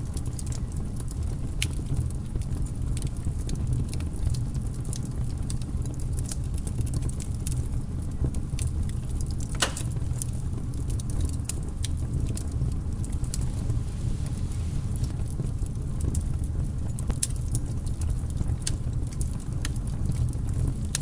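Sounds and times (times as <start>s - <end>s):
burning logs crackling: 0.0s - 21.0s
fire low rumble: 0.0s - 21.0s
loud pop of burning wood: 9.4s - 10.3s.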